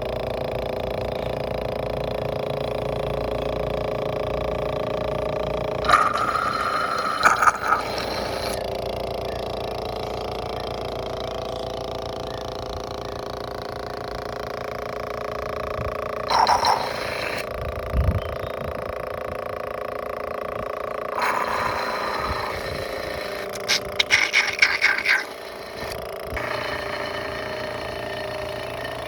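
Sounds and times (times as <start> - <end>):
small motor running: 0.0 - 29.0
nozzle hissing and slurping: 5.8 - 8.6, 16.2 - 17.5, 21.1 - 28.8.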